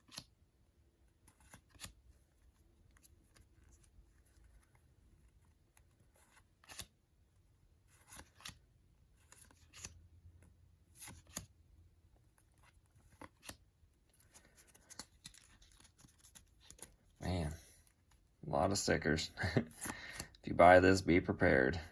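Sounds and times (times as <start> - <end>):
paper stickers crinkling and rustling: 12.2 - 18.2.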